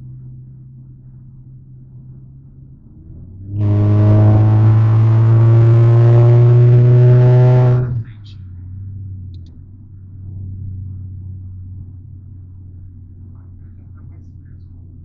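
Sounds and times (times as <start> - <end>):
car engine accelerating hard: 2.8 - 9.3.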